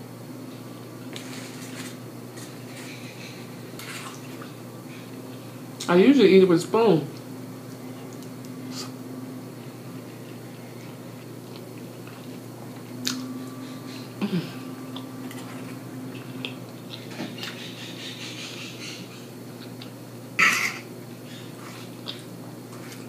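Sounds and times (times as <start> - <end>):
steady low hum: 0.0 - 23.0
wet chewing and mouth smacking: 10.2 - 13.2.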